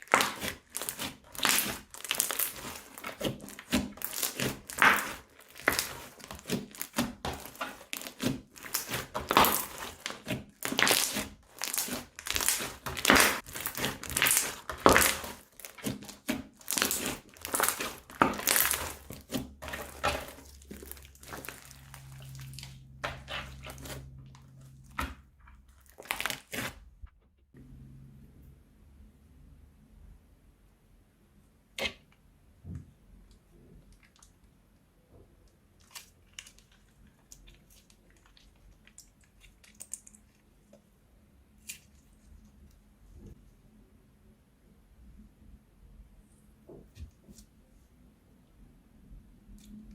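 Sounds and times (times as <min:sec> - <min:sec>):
slime squishing by hand: 0:00.0 - 0:27.1.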